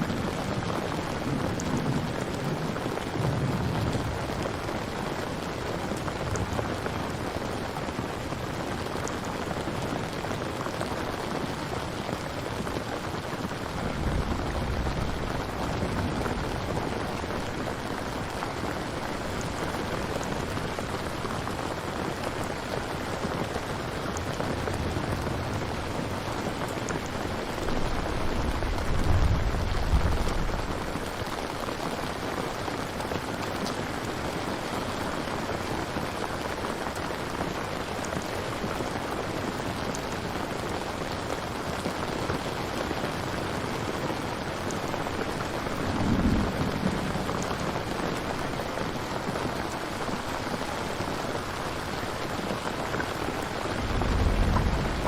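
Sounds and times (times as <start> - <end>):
heavy rain falling: 0.0 - 55.0
thunder rumbling: 0.1 - 7.2, 13.2 - 21.6, 23.4 - 32.0, 44.8 - 55.0.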